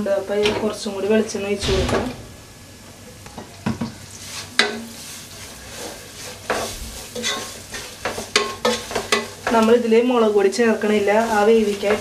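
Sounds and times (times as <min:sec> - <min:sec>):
onions sizzling in oil: 0:04.2 - 0:12.0
wooden spatula scraping pan: 0:04.4 - 0:09.7.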